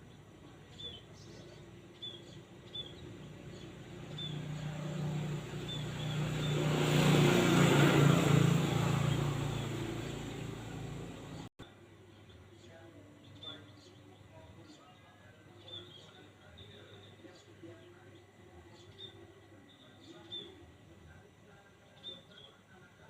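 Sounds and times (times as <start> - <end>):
small birds chirping: 0.0 - 23.0
motor vehicle passing: 2.7 - 11.5.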